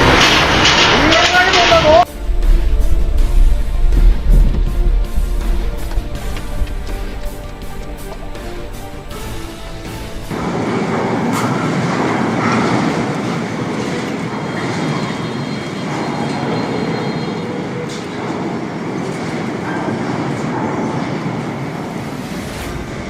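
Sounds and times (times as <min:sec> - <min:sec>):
earthquake rumbling and rattling: 0:00.0 - 0:15.1.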